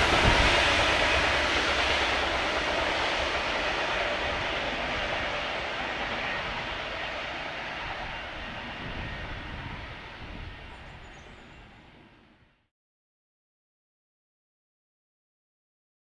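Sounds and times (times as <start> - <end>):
train rushing rumble: 0.0 - 12.4.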